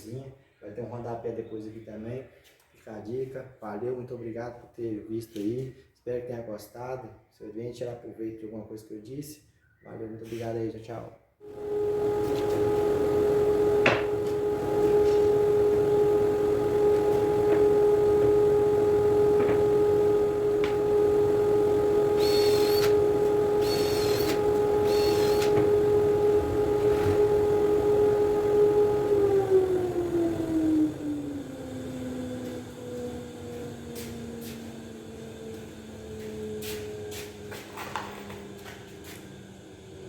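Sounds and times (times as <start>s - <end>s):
motor humming: 11.4s - 40.0s.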